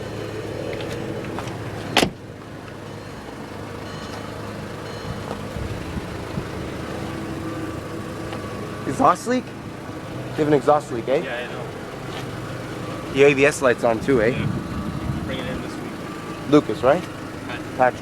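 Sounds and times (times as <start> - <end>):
car engine idling loudly: 0.0 - 18.0
car door shutting: 0.6 - 2.3, 4.9 - 6.5.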